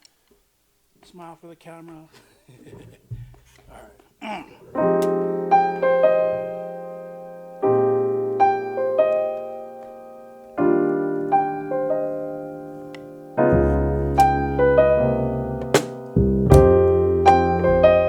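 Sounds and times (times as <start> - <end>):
electric keyboard chords: 4.8 - 18.0
bass: 13.4 - 18.0
drums: 15.7 - 16.8.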